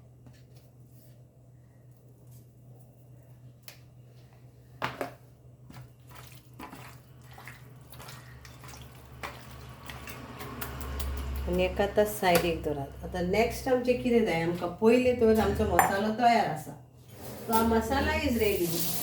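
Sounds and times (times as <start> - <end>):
wet squishing of marinade: 5.7 - 10.7.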